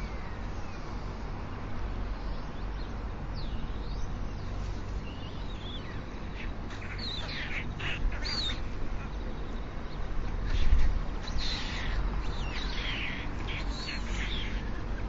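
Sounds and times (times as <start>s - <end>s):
birds chirping and squeaking: 3.4s - 15.0s.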